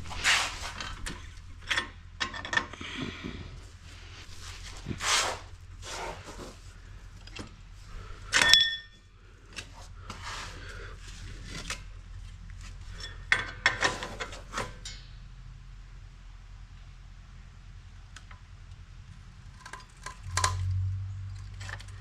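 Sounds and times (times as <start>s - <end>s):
tools rubbing and scraping: 0.0s - 3.0s, 3.7s - 6.7s, 9.6s - 14.8s
loud ringing metal clank: 8.4s - 9.0s
metal knocks and clinks: 8.4s - 9.0s.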